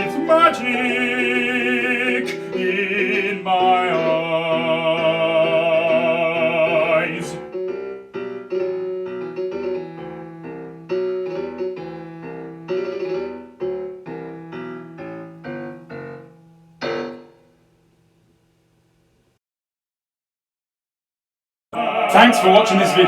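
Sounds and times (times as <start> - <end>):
piano chords: 0.0 - 18.3, 21.8 - 23.0.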